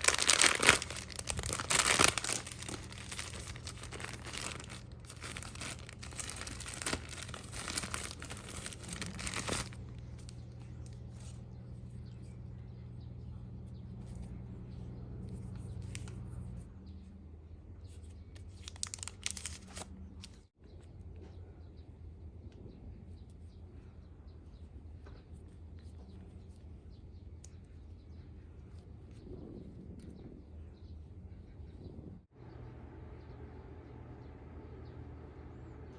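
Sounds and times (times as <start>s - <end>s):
packaging crinkling and tearing: 0.0s - 11.3s, 18.4s - 20.4s
steady low hum: 0.0s - 18.5s, 19.2s - 35.9s.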